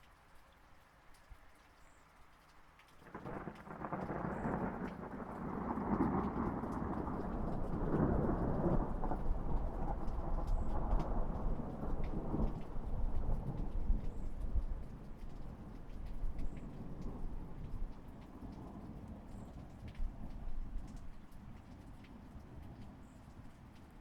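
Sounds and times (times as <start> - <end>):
light rain falling: 0.0 - 24.0
thunder rumbling: 3.1 - 21.2.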